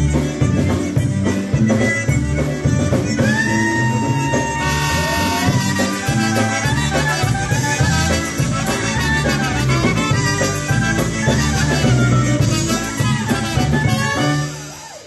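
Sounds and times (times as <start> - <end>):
bass: 0.0 - 15.0
drum kit: 0.0 - 15.0
trumpet: 3.0 - 15.0.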